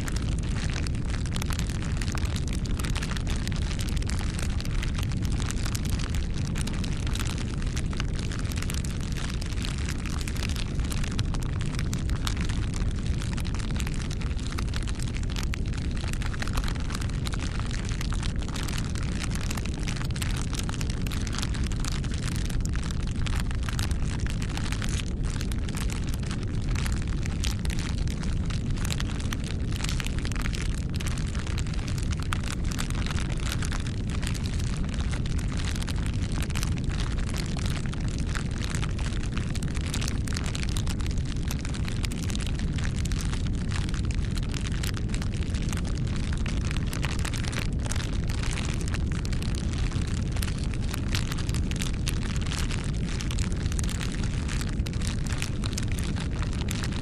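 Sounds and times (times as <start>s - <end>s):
fire crackling and popping: 0.0s - 57.0s
bonfire flame rushing: 0.1s - 42.4s, 52.5s - 54.0s.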